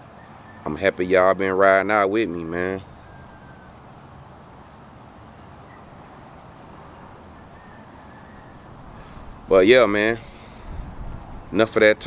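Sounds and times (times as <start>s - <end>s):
background noise: 0.0s - 12.0s.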